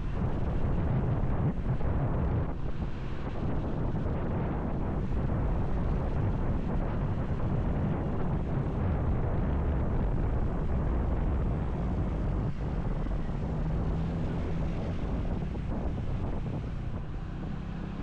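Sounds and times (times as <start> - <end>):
motorcycle engine rumble: 0.0 - 18.0
wind rushing over microphone: 0.0 - 18.0.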